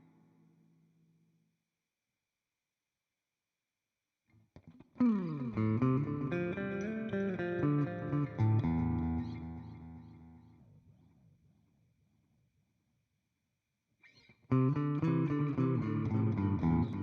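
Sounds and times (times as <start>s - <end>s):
electric guitar with delay: 5.0s - 10.5s, 14.5s - 17.0s.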